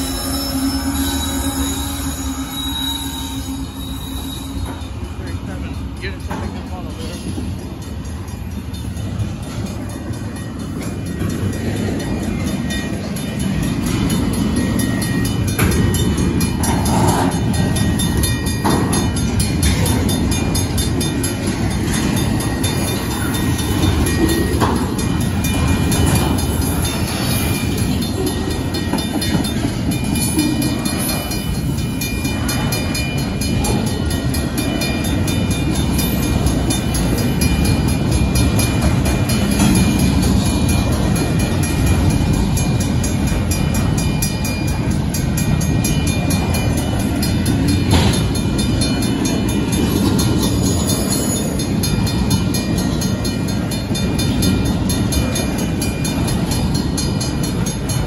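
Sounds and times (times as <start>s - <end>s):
sharp train clanks: 0.0s - 58.0s
train wheels rumbling on rails: 0.0s - 58.0s.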